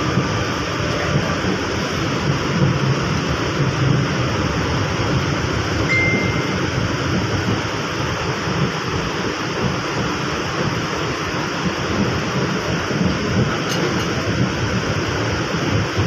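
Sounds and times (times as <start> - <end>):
light-rail train rumbling: 0.0 - 16.0
brief high steady tone: 5.8 - 6.8.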